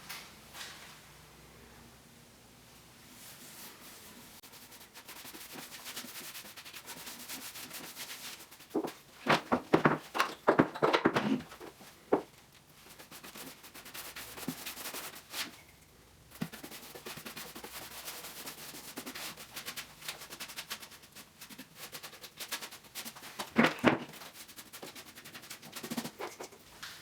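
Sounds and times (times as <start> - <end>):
paintbrush swishing on wooden boards: 3.2 - 10.6
knocks: 8.8 - 12.3.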